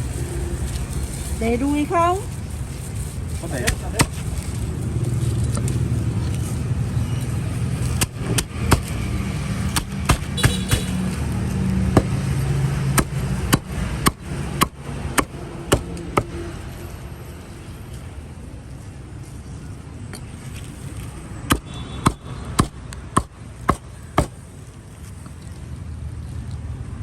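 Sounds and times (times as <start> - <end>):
vehicle engine humming: 0.0 - 27.0
sharp irregular knocks: 3.7 - 4.2, 7.9 - 9.0, 9.6 - 11.1, 11.9 - 12.3, 12.9 - 16.4, 21.5 - 24.4.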